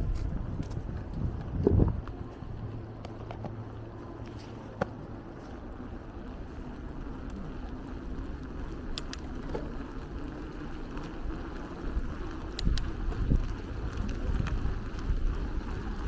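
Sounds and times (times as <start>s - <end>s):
wind buffeting microphone: 0.0s - 3.2s, 10.9s - 16.0s
bicycle rolling on street: 0.0s - 16.0s
sharp clicks: 8.9s - 9.7s, 12.4s - 13.4s.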